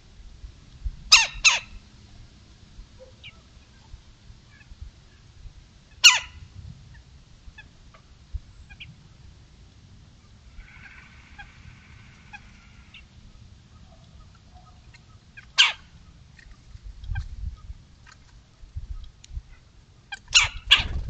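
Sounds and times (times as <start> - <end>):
distant overlapping bird calls: 3.0 - 5.3, 10.2 - 21.0.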